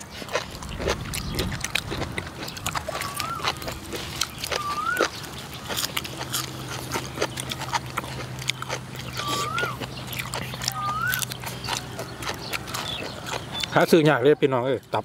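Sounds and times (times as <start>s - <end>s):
wet chewing and lip-smacking: 0.0s - 14.3s
whistled call: 3.0s - 3.6s, 4.5s - 5.2s, 9.2s - 9.8s, 10.7s - 11.3s.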